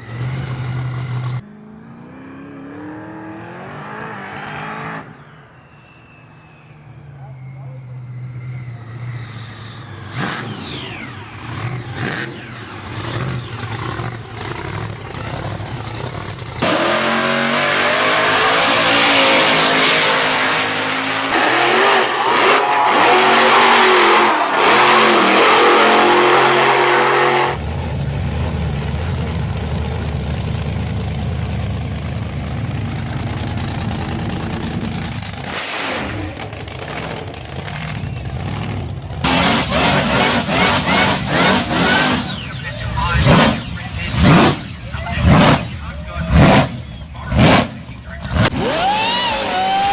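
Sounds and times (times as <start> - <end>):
car engines revving: 0.0 - 49.9
engine low rumble: 4.8 - 16.6, 27.6 - 39.3.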